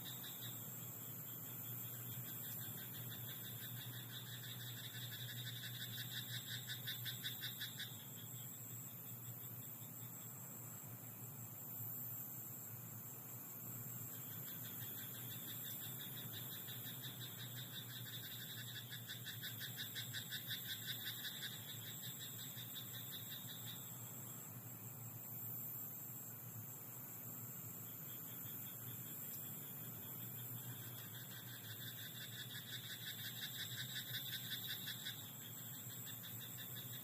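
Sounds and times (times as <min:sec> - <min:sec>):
frog pulsed croaking call: 0:00.0 - 0:00.7, 0:01.8 - 0:08.5, 0:14.1 - 0:24.0, 0:28.1 - 0:37.0
faint high hiss: 0:00.0 - 0:37.0.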